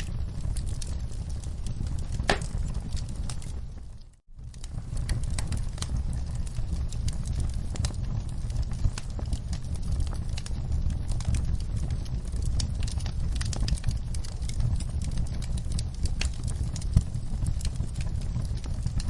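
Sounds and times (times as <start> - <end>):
wood fire crackling: 0.0 - 19.0
sharp pops and snaps: 2.1 - 6.0.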